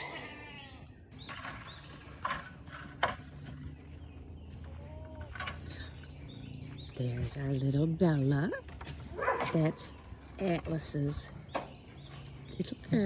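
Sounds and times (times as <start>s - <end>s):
goats bleating: 0.0s - 1.0s.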